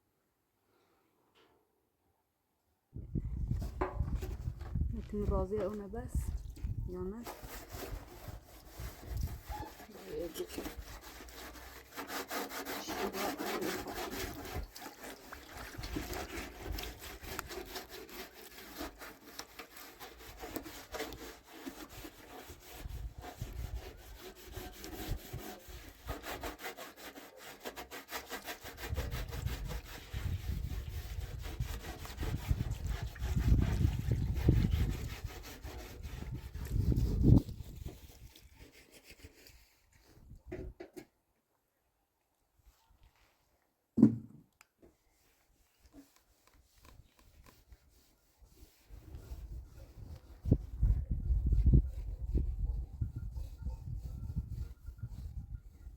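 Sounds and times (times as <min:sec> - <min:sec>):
rapid scraping strokes: 0:07.2 - 0:39.7.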